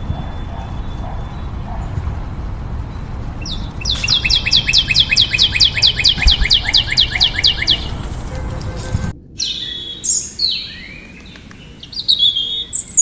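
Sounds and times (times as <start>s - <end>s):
songbird singing downward notes: 0.0s - 2.0s, 2.8s - 8.2s, 9.4s - 13.0s
steady low rumble: 0.0s - 12.6s.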